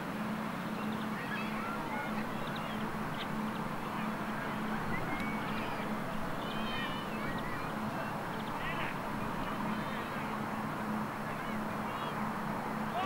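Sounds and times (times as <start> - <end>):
outdoor background noise: 0.0 - 13.0
birds chirping and squawking: 0.8 - 8.9.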